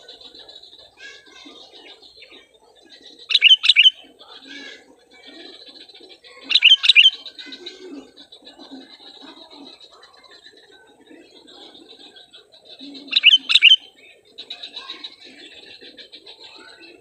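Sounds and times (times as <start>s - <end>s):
fainter birds calling: 0.0s - 17.0s
bird chirping loudly: 3.3s - 4.0s, 6.5s - 7.2s, 13.1s - 13.9s.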